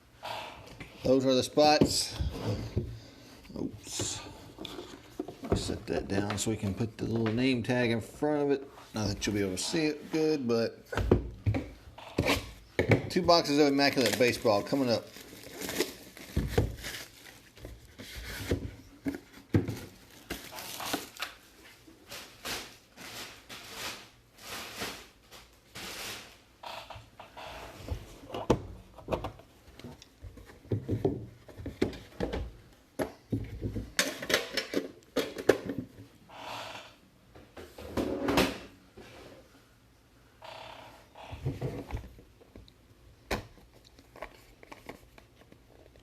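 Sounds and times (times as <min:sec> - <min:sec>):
rustling cardboard and wrapping: 0:13.1 - 0:26.6, 0:43.5 - 0:46.0.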